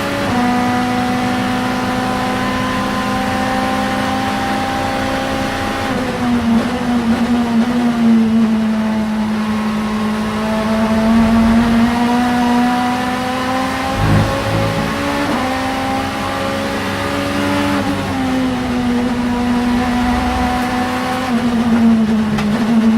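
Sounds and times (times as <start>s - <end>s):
race car engine at high revs: 0.0s - 22.9s
low thump: 13.9s - 15.2s.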